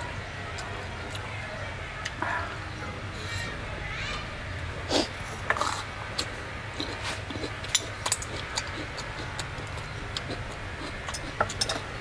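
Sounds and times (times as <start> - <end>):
steady low hum: 0.0 - 12.0
crunchy chewing of cucumber: 4.9 - 12.0.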